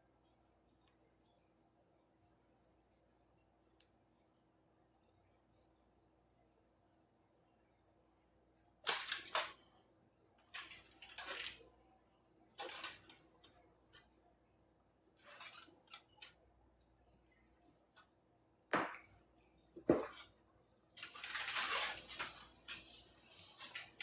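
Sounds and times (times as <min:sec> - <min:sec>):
cornstarch crumbly crackling: 0:10.4 - 0:18.2, 0:18.8 - 0:24.0.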